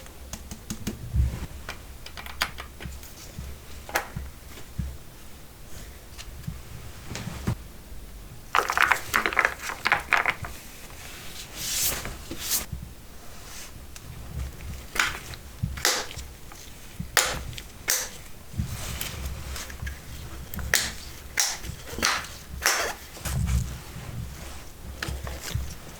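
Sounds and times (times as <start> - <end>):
packaging crinkling and rubbing: 8.5 - 12.4.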